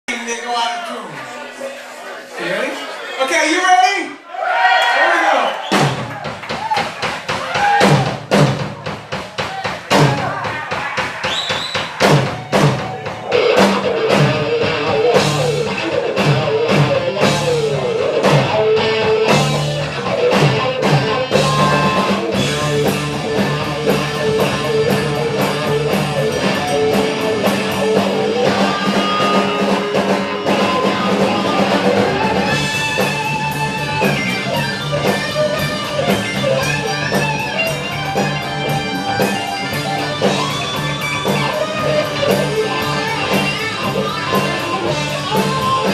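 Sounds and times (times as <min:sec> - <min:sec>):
drum kit: 0:05.6 - 0:45.9
bass line: 0:09.9 - 0:45.9
electric guitar sliding notes: 0:13.2 - 0:45.9.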